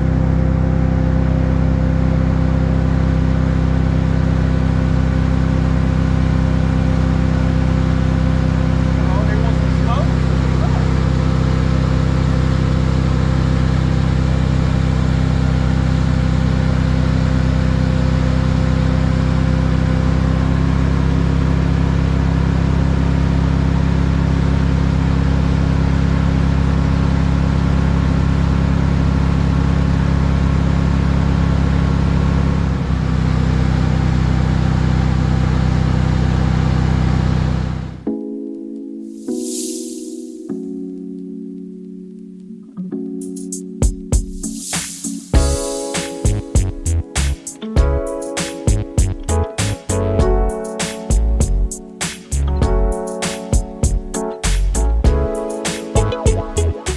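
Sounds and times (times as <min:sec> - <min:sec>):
boat engine running: 0:00.1 - 0:33.2.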